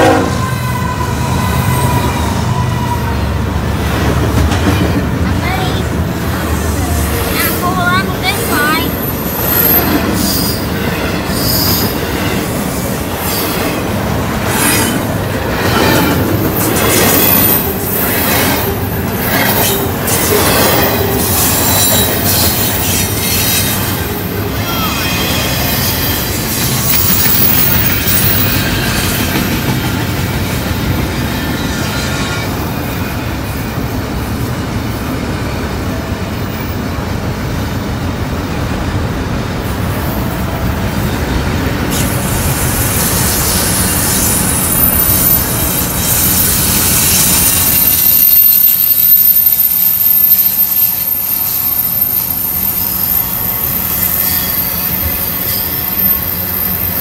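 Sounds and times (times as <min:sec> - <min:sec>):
freight train rolling: 0:00.0 - 0:57.0
wheel squeal: 0:15.7 - 0:18.7, 0:19.3 - 0:24.0, 0:43.0 - 0:57.0.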